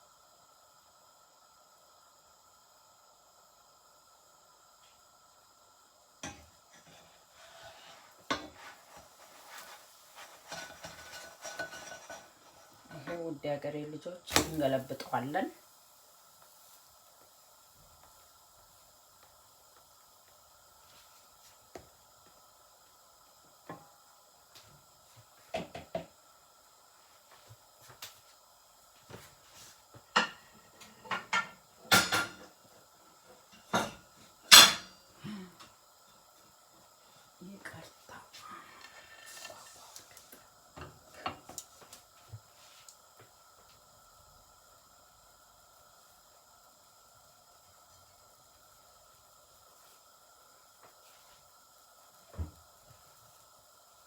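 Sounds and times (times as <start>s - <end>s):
utensils clattering against a pan: 9.5s - 13.0s, 30.1s - 32.6s, 33.6s - 35.0s
utensil clinking on frying pan: 33.7s - 35.0s.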